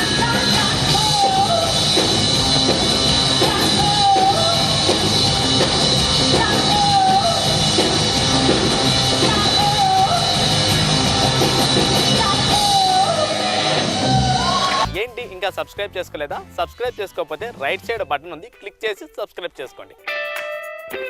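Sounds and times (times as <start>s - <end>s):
loud rock music with singing: 0.0s - 15.4s.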